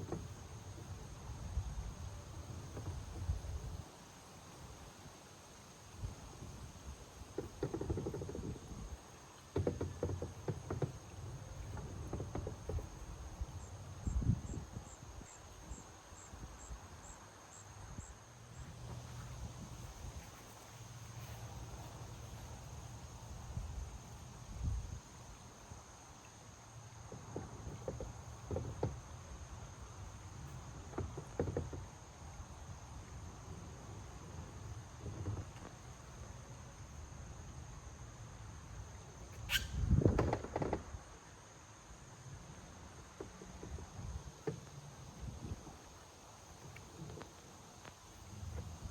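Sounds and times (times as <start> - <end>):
insect chirps: 0.0 - 48.9
insects droning: 0.0 - 48.9.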